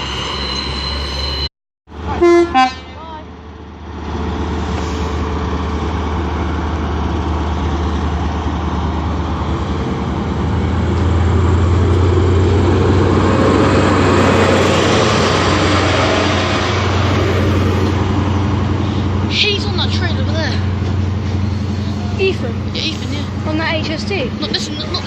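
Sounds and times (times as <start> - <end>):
diesel train engine droning: 0.0 - 25.0.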